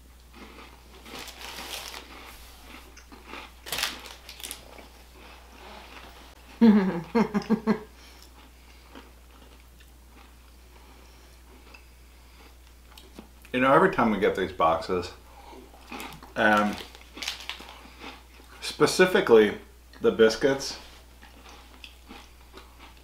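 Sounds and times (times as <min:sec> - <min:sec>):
crunching bites and chewing: 0:00.1 - 0:06.2, 0:08.2 - 0:13.4, 0:15.7 - 0:18.6, 0:21.2 - 0:23.0.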